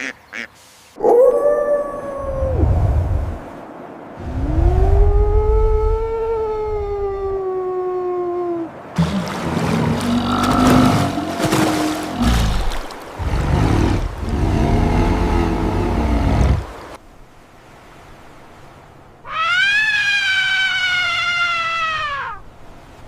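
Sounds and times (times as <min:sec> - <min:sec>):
long clear animal cry: 0:19.3 - 0:22.4.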